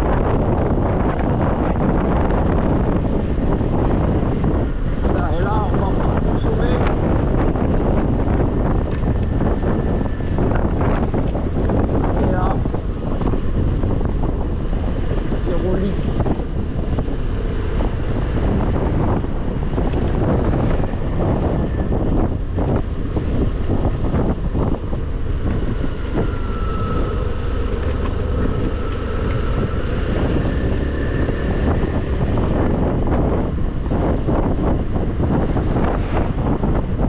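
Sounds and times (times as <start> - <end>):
wind rushing over microphone: 0.0 - 37.0
scooter engine running: 16.4 - 37.0.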